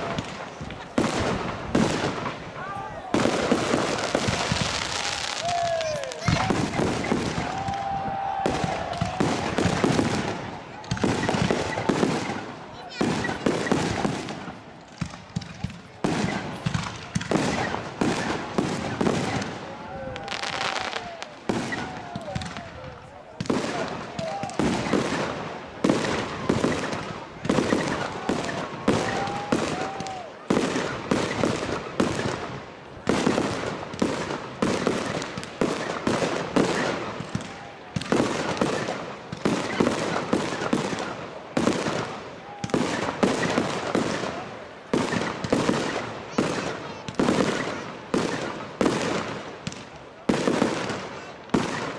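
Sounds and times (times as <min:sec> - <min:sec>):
fireworks bursting: 0:00.0 - 0:51.9
fireworks crackling: 0:00.0 - 0:51.9.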